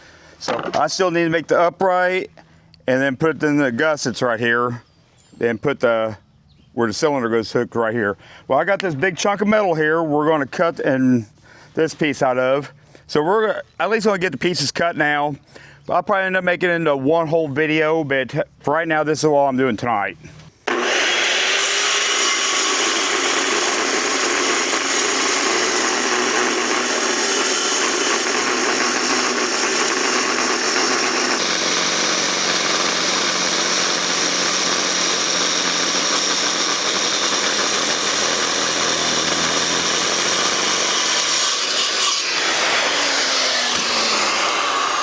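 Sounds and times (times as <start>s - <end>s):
power saw cutting steel: 20.6s - 45.0s
saw motor winding down: 20.6s - 45.0s.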